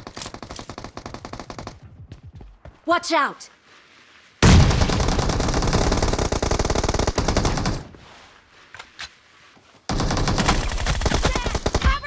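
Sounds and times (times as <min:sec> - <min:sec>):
video game automatic gunfire: 0:00.3 - 0:01.8.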